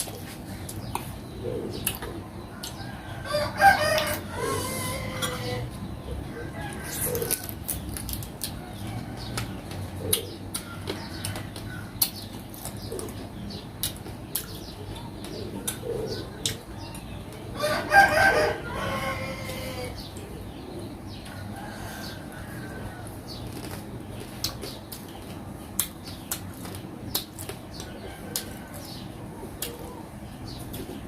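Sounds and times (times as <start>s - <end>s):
sucking and chewing: 0.0s - 2.9s, 6.6s - 17.0s, 22.3s - 30.1s.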